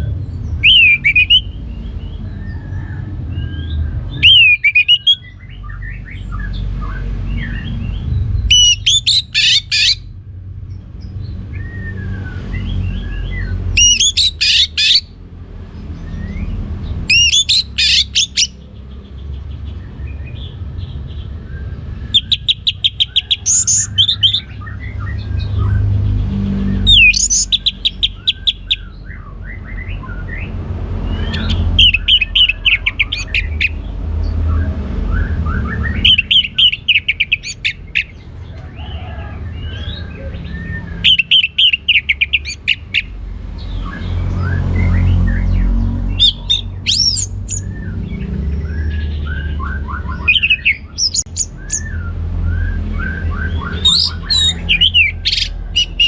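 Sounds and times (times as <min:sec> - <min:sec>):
thrush singing: 0:16.1 - 0:19.1.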